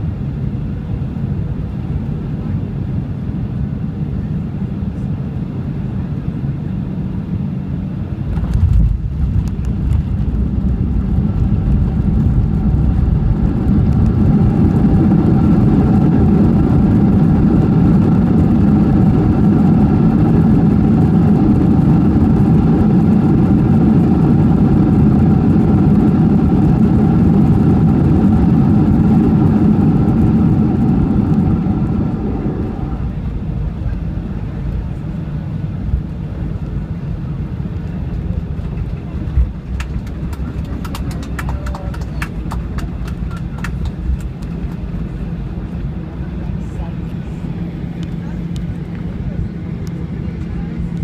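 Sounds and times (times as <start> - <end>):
jet engines reverse thrust: 0.0 - 51.0.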